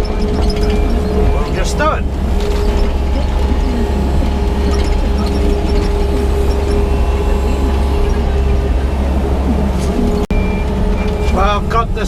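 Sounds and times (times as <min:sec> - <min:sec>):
short squeaks: 0:00.0 - 0:08.8
excavator engine running: 0:00.0 - 0:12.0
hydraulic whine: 0:00.0 - 0:12.0.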